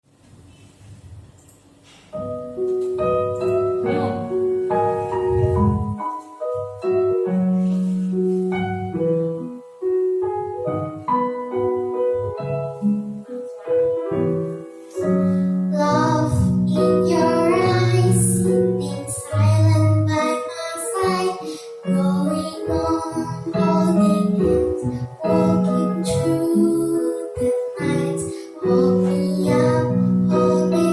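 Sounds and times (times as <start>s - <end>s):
piano chords and melody: 1.8s - 30.9s
child singing: 15.7s - 30.9s.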